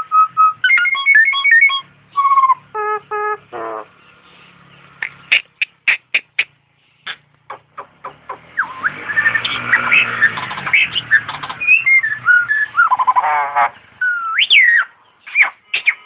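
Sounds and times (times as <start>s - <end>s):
bird nasal honking notes: 0.0s - 16.0s
starling singing whistled notes: 0.0s - 16.0s
bird sharp clicking chips: 5.0s - 12.9s, 14.4s - 16.0s.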